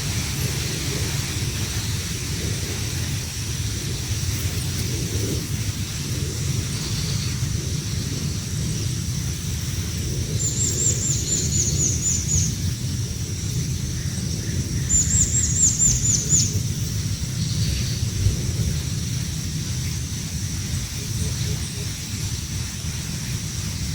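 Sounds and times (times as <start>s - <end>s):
steady low rumble: 0.0s - 23.9s
small bird chirping: 6.4s - 12.8s, 13.6s - 20.1s.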